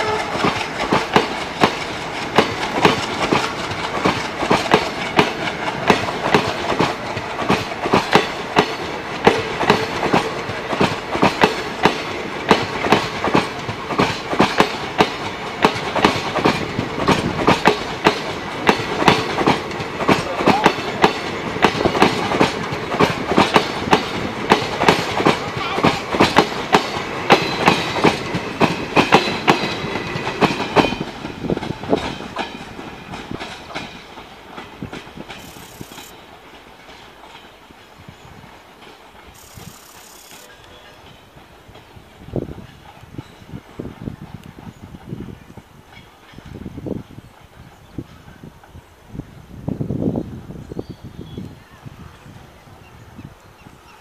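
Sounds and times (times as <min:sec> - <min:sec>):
train wheels clicking over rail joints: 0:00.0 - 0:48.8.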